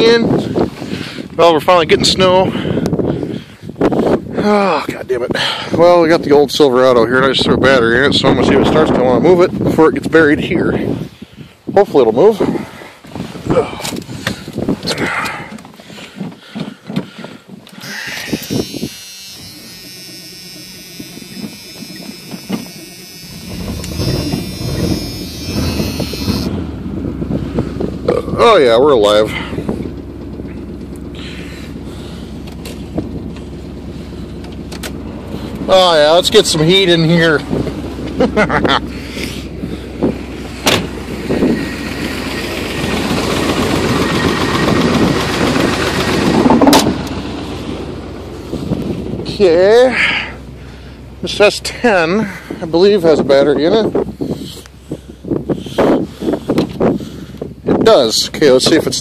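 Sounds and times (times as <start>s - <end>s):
engine cranking and starting: 12.6s - 59.0s
high-pitched whine: 17.8s - 26.8s.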